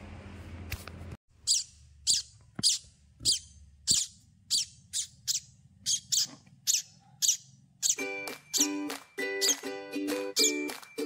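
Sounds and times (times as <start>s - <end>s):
nestling birds begging cheeps: 1.4s - 9.7s, 10.3s - 10.7s.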